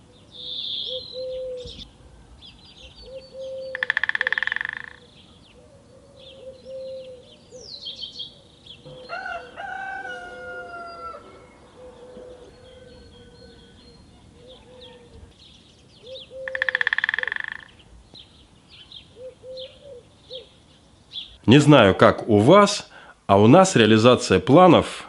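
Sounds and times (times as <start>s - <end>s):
small birds chirping: 0.0s - 21.5s
short low repeated calls: 3.2s - 5.2s, 16.3s - 17.8s
rooster crowing: 8.8s - 13.8s.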